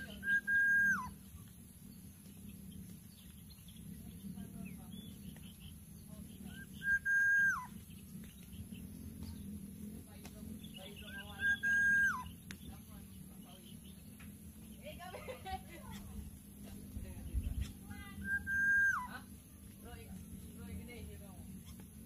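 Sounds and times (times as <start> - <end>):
bird whistled note: 0.2 - 1.2, 6.5 - 7.8, 11.4 - 12.3, 18.2 - 19.1.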